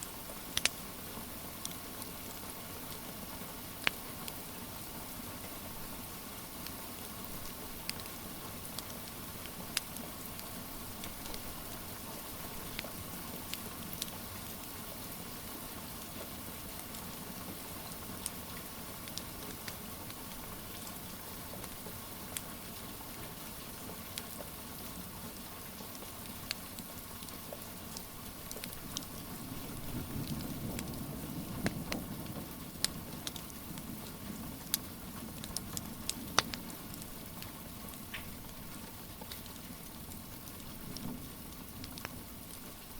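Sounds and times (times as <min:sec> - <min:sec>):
wood fire crackling: 0:00.0 - 0:42.9
rain hissing: 0:25.4 - 0:42.9.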